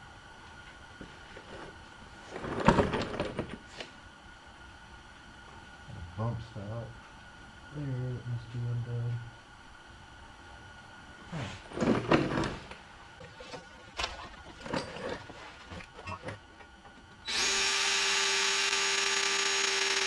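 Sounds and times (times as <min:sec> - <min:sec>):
power drill drilling: 0:17.2 - 0:20.0.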